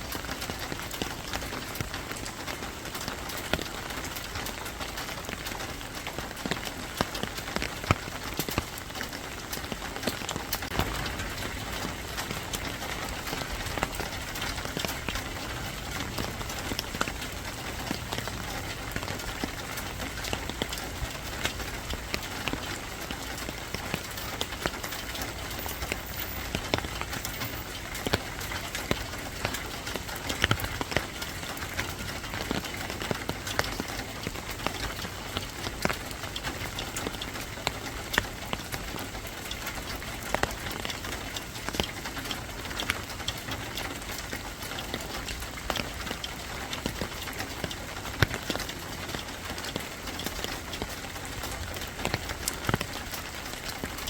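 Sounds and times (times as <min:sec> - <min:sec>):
raindrops ticking: 0:00.0 - 0:54.0
steady rain hiss: 0:00.0 - 0:54.0.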